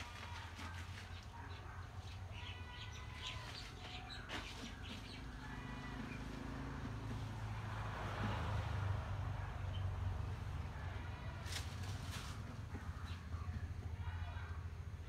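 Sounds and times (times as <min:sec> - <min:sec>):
birds chirping: 0:00.0 - 0:06.8, 0:12.4 - 0:15.0.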